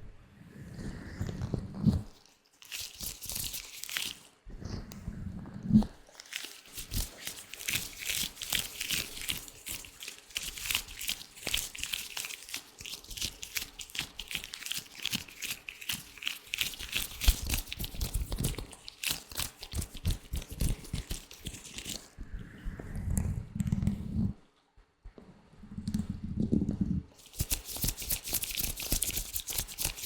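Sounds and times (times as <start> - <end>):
latex gloves crinkling: 1.9 - 4.4, 6.0 - 22.1, 27.2 - 30.0.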